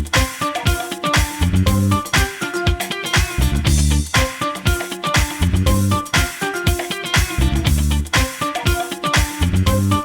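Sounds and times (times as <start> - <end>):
upbeat funk music: 0.0 - 10.0.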